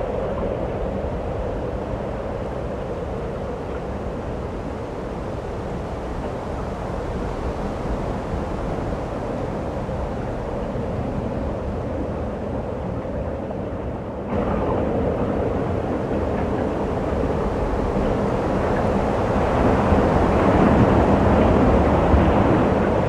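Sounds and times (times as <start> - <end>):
snowstorm wind blowing: 14.3 - 23.0.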